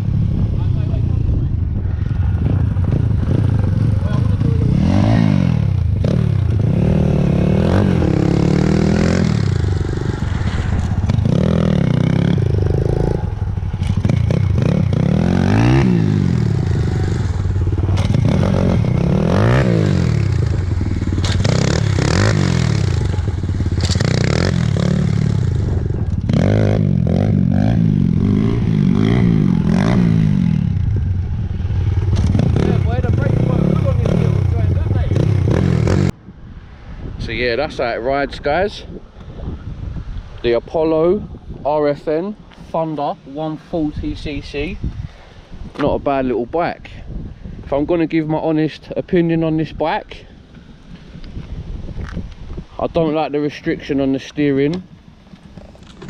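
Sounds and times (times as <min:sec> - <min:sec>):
motorbike engine revving: 0:02.0 - 0:36.2.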